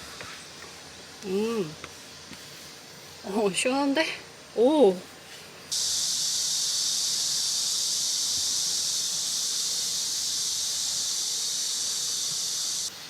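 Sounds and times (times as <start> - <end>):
shower water spraying: 5.7 - 12.9.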